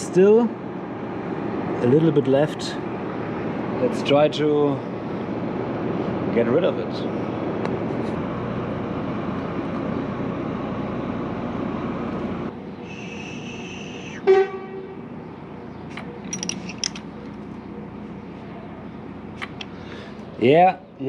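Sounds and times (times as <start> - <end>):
steady background noise: 0.0 - 21.0
high horn-like tone: 13.0 - 15.0
metallic clinks: 16.0 - 17.3.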